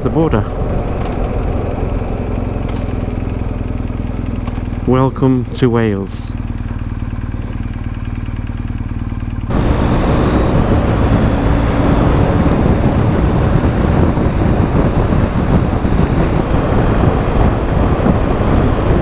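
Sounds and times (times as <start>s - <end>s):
wind rush at speed: 0.0s - 5.1s, 9.5s - 19.0s
motorcycle engine running: 0.0s - 19.0s.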